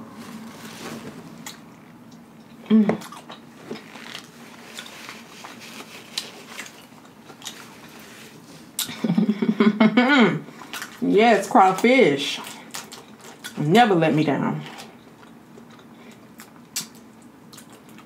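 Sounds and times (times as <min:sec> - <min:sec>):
person chewing: 0:00.4 - 0:09.0, 0:10.5 - 0:11.0, 0:12.4 - 0:13.6, 0:14.7 - 0:18.0.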